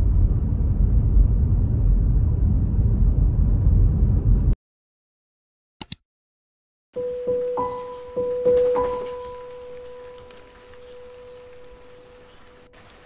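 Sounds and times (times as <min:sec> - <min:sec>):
low rumbling noise: 0:00.0 - 0:04.6
quick clicks: 0:05.8 - 0:06.0.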